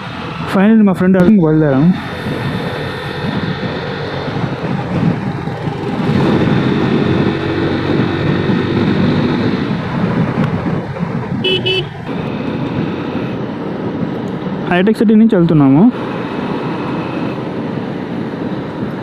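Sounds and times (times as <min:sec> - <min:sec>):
motorcycle and road noise: 0:00.0 - 0:19.0
wind buffeting microphone: 0:00.0 - 0:19.0
vehicle horn tooting: 0:11.4 - 0:13.4.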